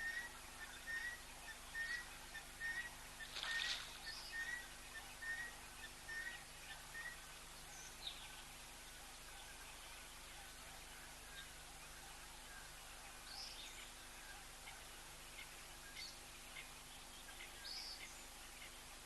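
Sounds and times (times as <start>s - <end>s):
bird chirps: 0.0s - 8.2s.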